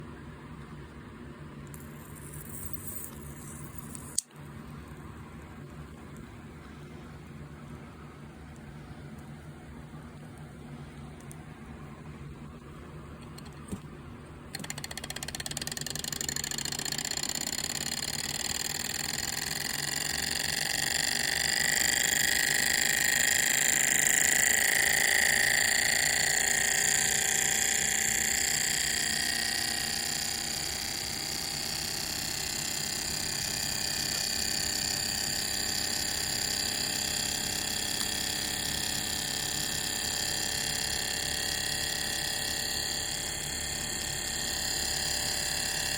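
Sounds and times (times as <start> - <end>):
model engine mechanical whir: 14.5 - 45.9.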